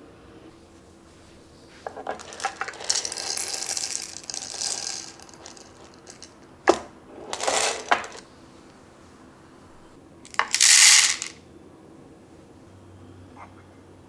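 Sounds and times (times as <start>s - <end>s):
small hard objects clattering: 1.8s - 8.2s, 10.3s - 11.3s.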